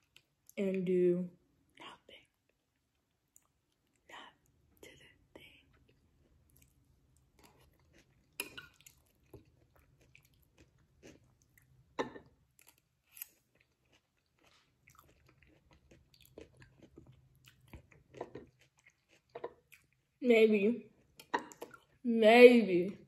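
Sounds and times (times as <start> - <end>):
wet chewing: 12.6 - 20.1.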